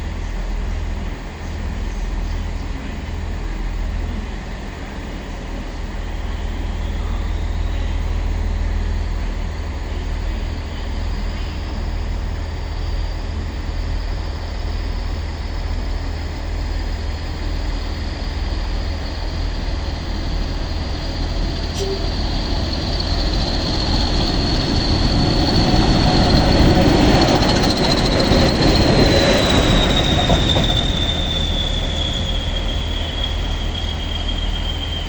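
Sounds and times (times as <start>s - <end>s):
diesel locomotive engine rumble: 0.0s - 35.0s
high rising whistle: 17.9s - 35.0s.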